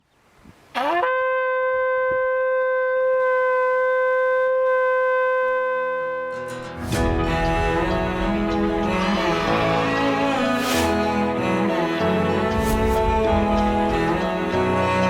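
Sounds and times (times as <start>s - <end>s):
shofar blast: 0.8s - 15.0s
soft background music: 6.3s - 15.0s.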